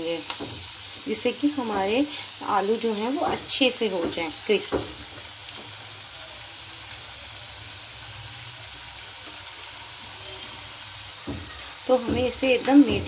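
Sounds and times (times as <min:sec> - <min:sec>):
potato slices sizzling in oil: 0:00.0 - 0:13.0.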